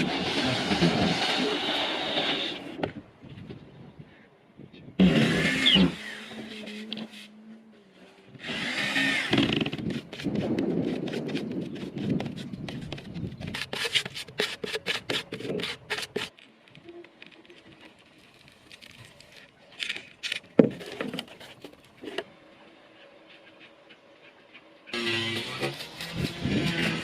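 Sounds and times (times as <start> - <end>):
sharp taps and scraping: 9.3 - 22.3.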